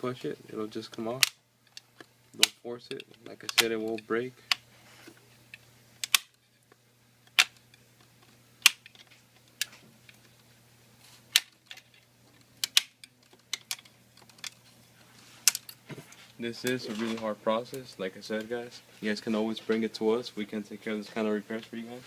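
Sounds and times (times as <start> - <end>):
plastic clips popping free: 6.0 - 6.4, 8.6 - 9.7, 11.3 - 11.9, 12.6 - 14.5.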